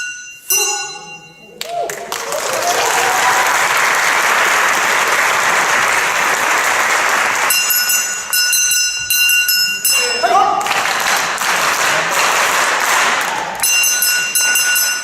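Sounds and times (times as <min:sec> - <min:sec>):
high ringing tone: 0:00.0 - 0:01.6
audience applauding: 0:01.6 - 0:07.8, 0:10.5 - 0:13.7.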